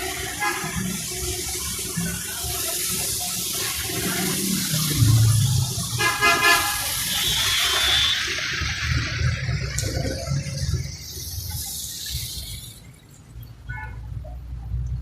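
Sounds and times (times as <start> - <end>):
heavy rain on road: 0.0 - 13.4
vehicle horn honking: 6.0 - 8.3.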